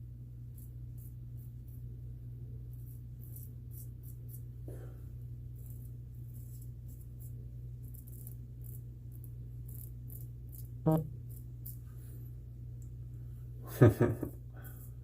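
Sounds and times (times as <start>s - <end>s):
steady low hum: 0.0s - 15.0s
razor scraping stubble: 0.4s - 1.8s, 2.7s - 4.6s, 5.4s - 12.0s.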